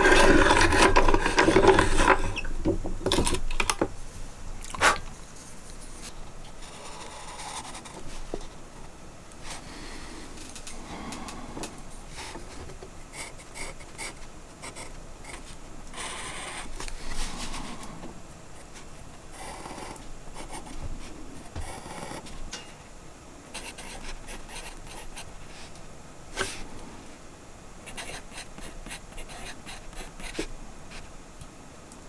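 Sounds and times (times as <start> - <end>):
scraping and rubbing: 0.0 - 3.9, 4.7 - 6.2
small clicks and knocks: 0.0 - 4.0.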